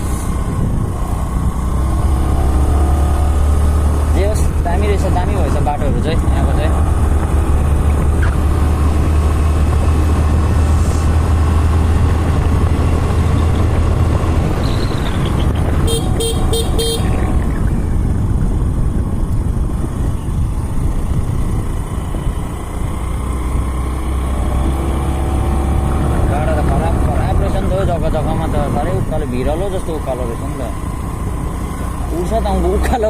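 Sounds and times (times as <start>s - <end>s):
wind buffeting microphone: 0.0s - 2.7s, 3.3s - 30.0s
motorcycle riding: 0.0s - 33.0s
horn beeps: 14.6s - 17.2s.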